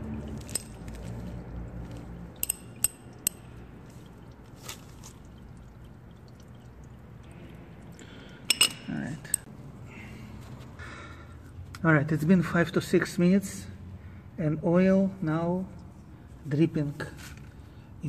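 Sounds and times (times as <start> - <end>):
oil trickling into drain pan: 0.0 - 8.6.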